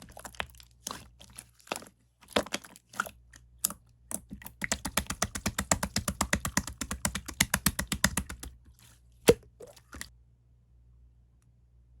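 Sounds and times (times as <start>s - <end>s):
loud slime pop: 9.3s - 9.7s.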